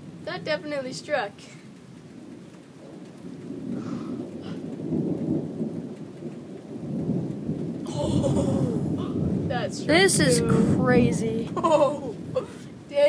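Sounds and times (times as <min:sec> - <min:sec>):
rain falling: 0:00.0 - 0:13.0
rolling thunder: 0:00.0 - 0:13.0.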